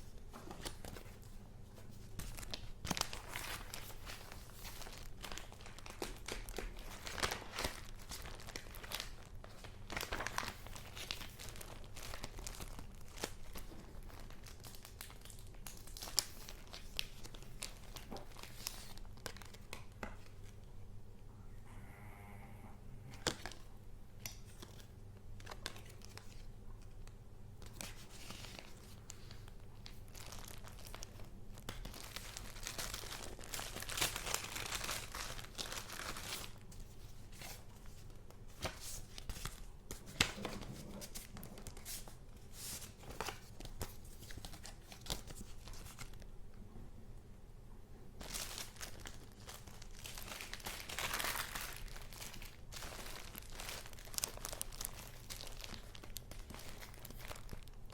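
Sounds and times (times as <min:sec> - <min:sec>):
paper rustling and crinkling: 0:00.0 - 0:20.6, 0:24.3 - 0:26.9, 0:27.6 - 0:46.2, 0:48.2 - 0:57.9.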